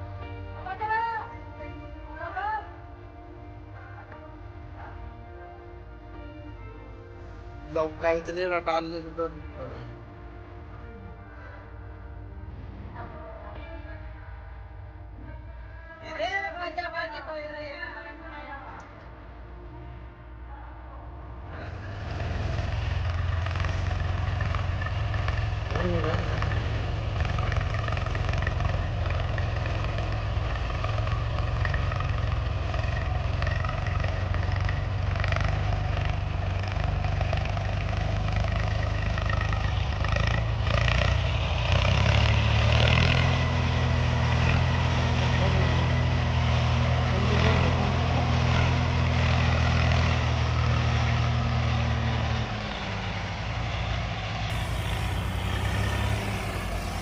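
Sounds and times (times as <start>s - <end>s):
tractor engine running: 21.7s - 52.1s, 54.5s - 57.0s.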